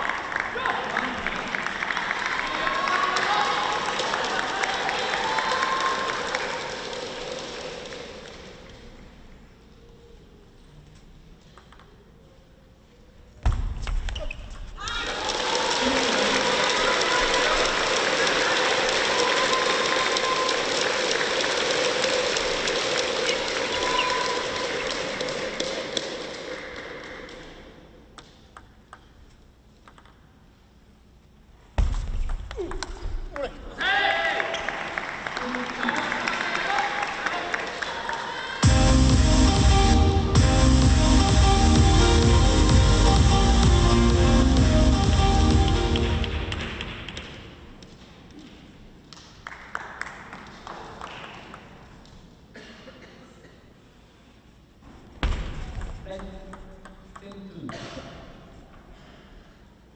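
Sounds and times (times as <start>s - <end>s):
crowd noise: 0.0s - 10.7s, 14.2s - 28.1s, 34.3s - 47.8s
arena music: 38.6s - 47.7s.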